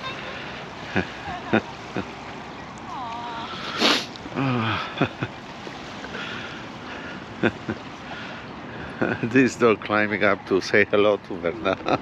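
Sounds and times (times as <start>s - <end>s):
ocean surf washing on beach: 0.0s - 12.0s
wind: 0.0s - 12.0s
brief hiss: 3.6s - 4.2s.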